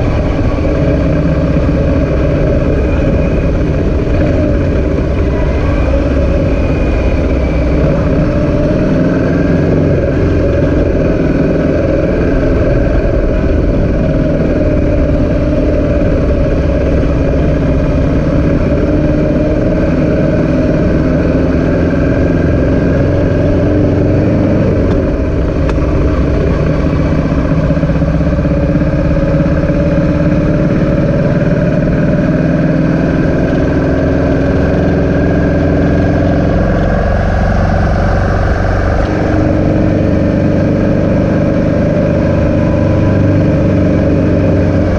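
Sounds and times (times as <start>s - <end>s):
engine running: 0.0s - 44.9s.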